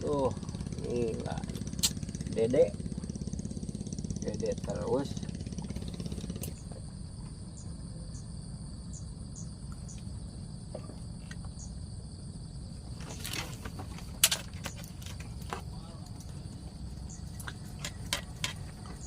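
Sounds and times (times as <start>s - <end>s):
insects droning: 0.0s - 19.0s
sharp click: 1.7s - 2.0s.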